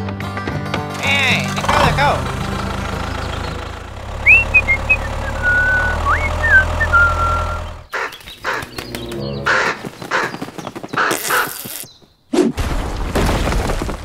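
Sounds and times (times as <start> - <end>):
low engine hum: 0.8 - 7.9
harsh raspy bird calls: 1.0 - 12.2
bird calls: 1.0 - 12.3.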